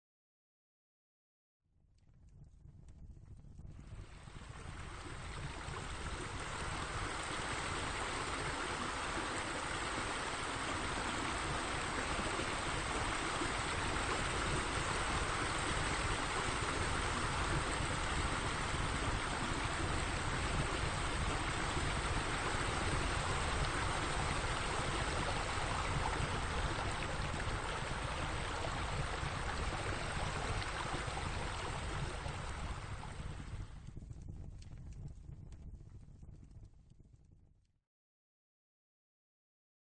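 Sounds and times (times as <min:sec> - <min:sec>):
water splashing into pool: 0:04.2 - 0:33.2.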